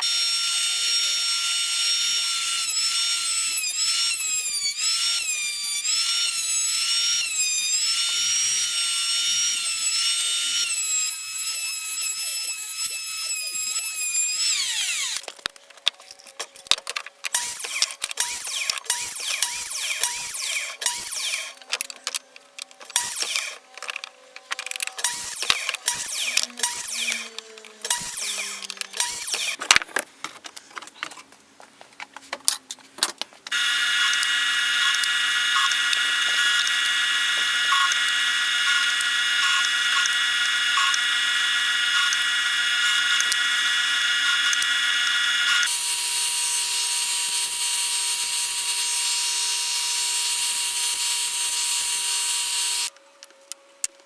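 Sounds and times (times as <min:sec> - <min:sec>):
power tool running: 0:00.0 - 0:15.3, 0:25.0 - 0:29.6, 0:33.5 - 0:53.0.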